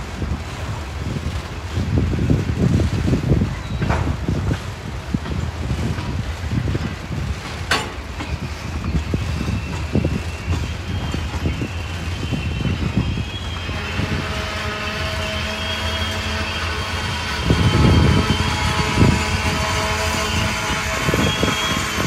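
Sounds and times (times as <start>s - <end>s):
train wheels rumbling on rail: 0.0s - 22.0s
high squealing tones: 8.6s - 22.0s.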